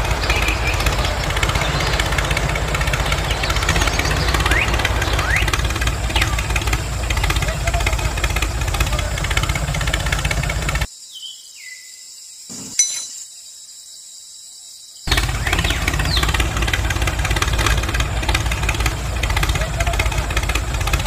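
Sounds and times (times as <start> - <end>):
motor running: 0.0 - 10.9, 15.1 - 21.0.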